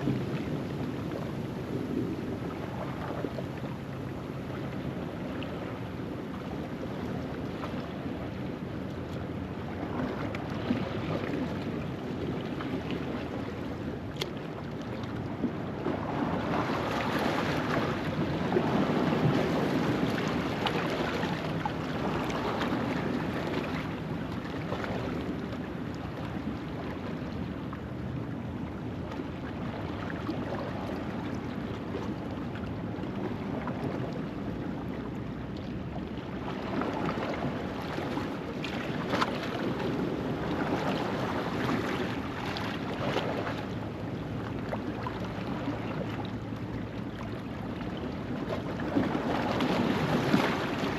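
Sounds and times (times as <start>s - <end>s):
waves washing over rocks: 48.8s - 50.9s.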